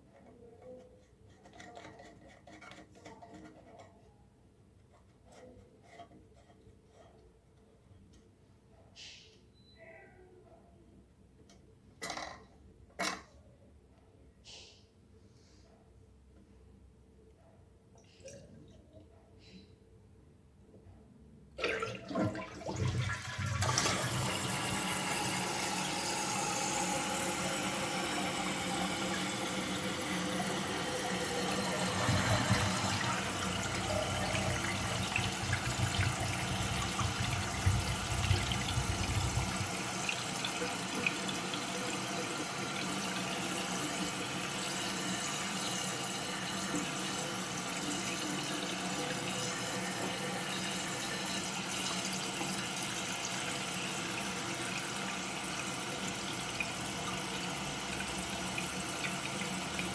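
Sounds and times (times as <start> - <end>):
toilet water rushing: 21.6 - 59.9
tank refilling hiss: 23.6 - 41.3.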